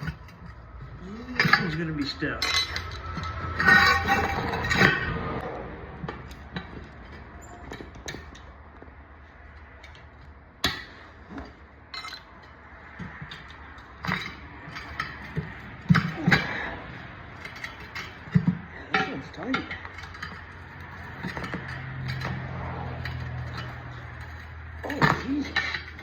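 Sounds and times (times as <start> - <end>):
metal hand tools clinking: 0.0 - 5.1, 10.7 - 26.0.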